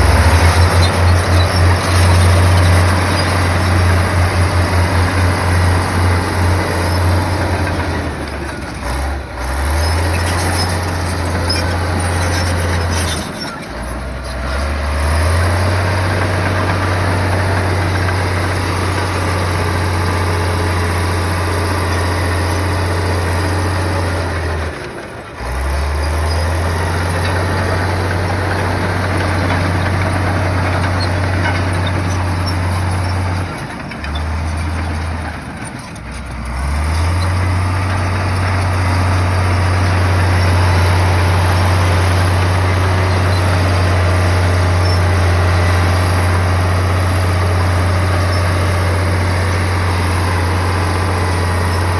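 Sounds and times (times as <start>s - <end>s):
diesel engine droning: 0.0s - 51.9s.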